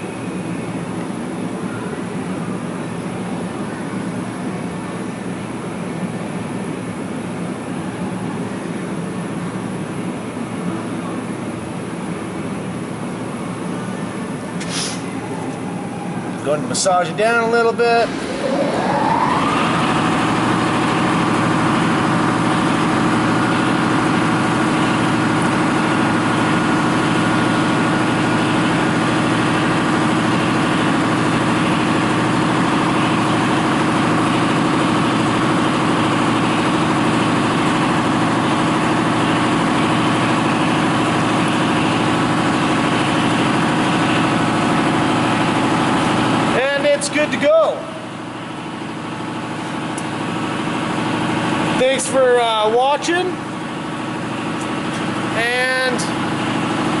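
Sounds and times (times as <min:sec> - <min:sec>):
motor humming with whine: 0:10.7 - 0:46.6.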